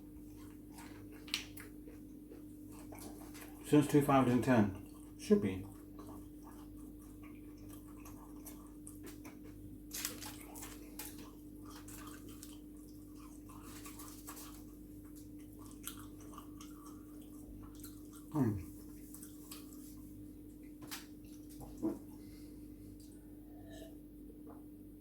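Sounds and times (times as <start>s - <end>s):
person chewing food: 0.0s - 23.9s.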